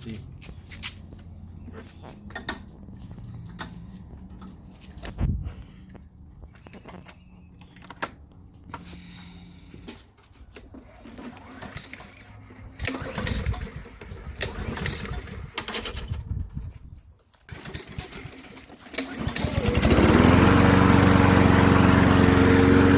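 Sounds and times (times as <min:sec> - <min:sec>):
lawn mower engine running: 0:09.4 - 0:16.5, 0:17.4 - 0:22.9.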